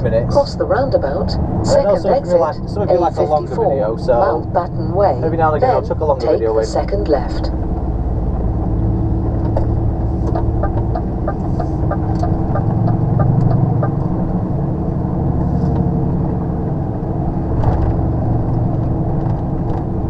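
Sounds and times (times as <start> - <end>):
diesel engine rumbling: 0.0 - 20.0
turn indicator ticking: 10.3 - 14.1.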